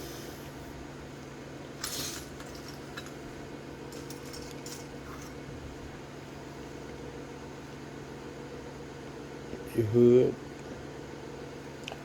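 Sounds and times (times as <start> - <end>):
steady low hum: 0.0 - 12.0
plastic parts clicking and rustling: 1.8 - 3.2, 3.9 - 5.4.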